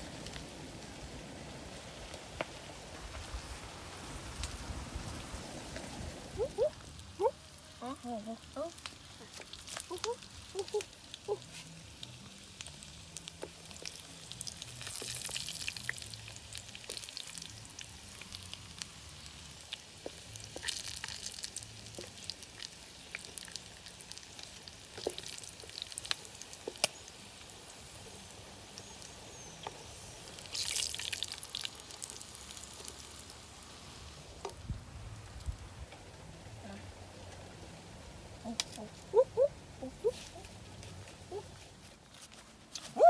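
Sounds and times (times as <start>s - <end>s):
meat sizzling and crackling in pan: 8.7s - 34.5s.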